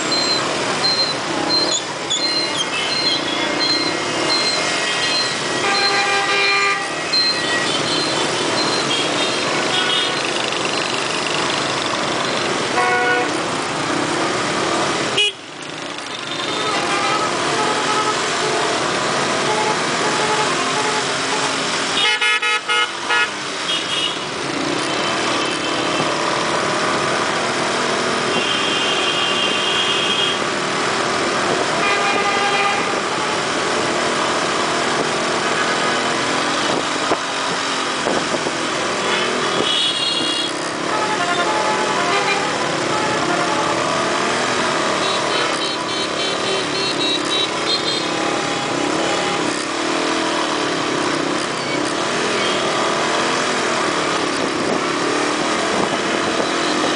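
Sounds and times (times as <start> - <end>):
horns honking: 0.1 - 10.4, 12.6 - 13.5, 15.1 - 15.5, 16.1 - 26.1, 28.2 - 30.5, 31.7 - 33.4, 39.0 - 49.8
motorcycle engines running: 7.0 - 22.0, 23.3 - 29.8, 32.8 - 56.9.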